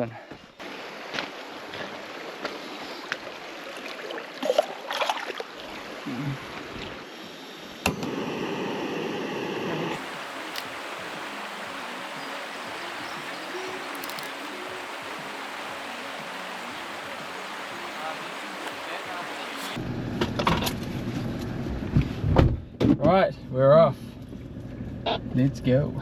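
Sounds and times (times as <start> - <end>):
river rushing: 9.9 - 19.8.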